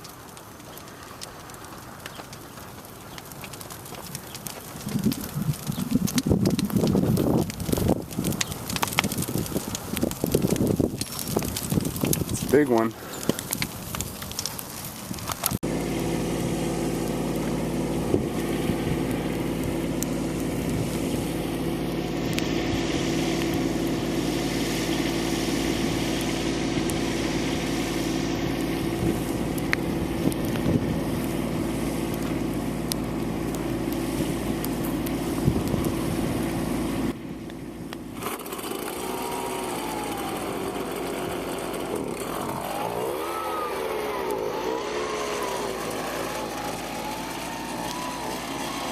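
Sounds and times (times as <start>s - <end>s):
small diesel tractor engine: 15.5s - 48.9s.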